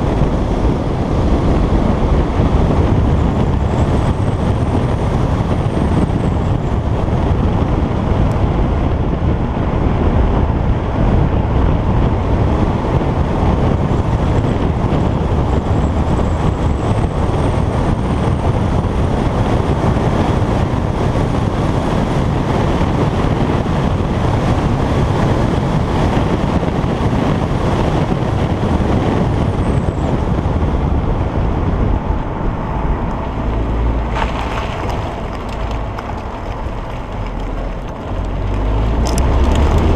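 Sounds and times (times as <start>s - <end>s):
car engine pulling: 0.0s - 39.9s
road noise: 0.0s - 39.9s
wind buffeting microphone: 0.0s - 39.9s.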